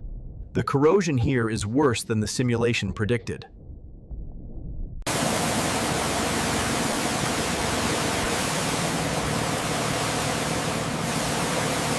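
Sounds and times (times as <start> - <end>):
loud steady hiss: 5.1 - 11.9.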